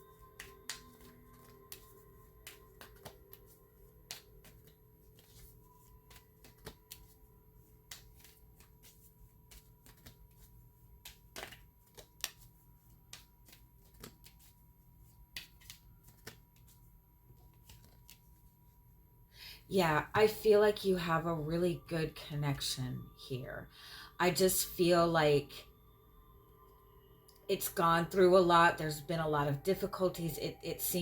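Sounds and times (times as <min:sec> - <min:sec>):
cards being shuffled: 0:00.0 - 0:18.6.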